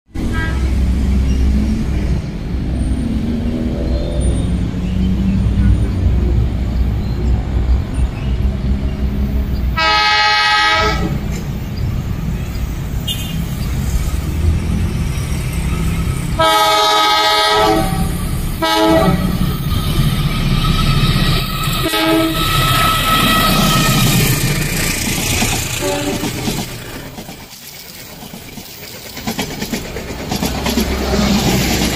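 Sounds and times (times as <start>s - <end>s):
train rumbling on rails: 0.1s - 31.9s
train horn blasts: 0.2s - 0.9s, 9.8s - 11.3s, 13.0s - 13.5s, 16.4s - 20.0s, 20.6s - 24.7s, 25.8s - 26.5s.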